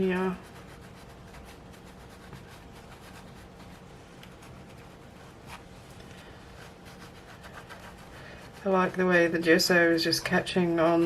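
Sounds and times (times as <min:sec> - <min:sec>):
low steady hum: 0:00.0 - 0:11.0
scratchy rubbing on paper: 0:00.0 - 0:11.0.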